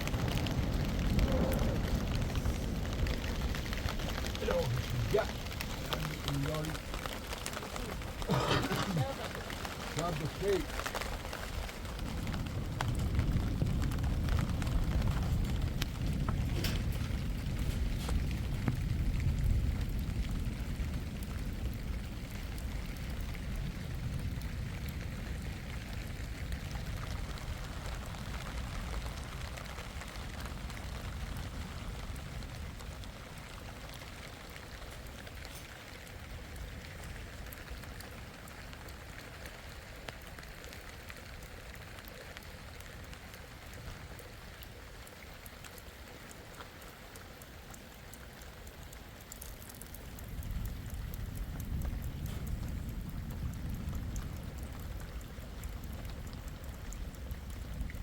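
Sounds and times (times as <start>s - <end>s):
low rumble: 0.0s - 39.5s
rain patter: 0.0s - 58.0s.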